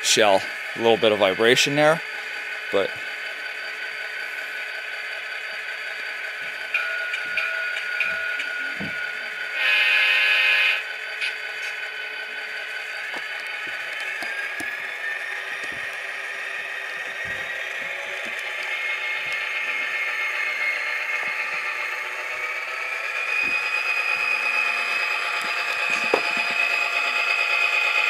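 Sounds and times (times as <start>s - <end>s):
diesel engine sound from speaker: 0.0s - 28.0s
speaker rattle: 23.3s - 27.1s.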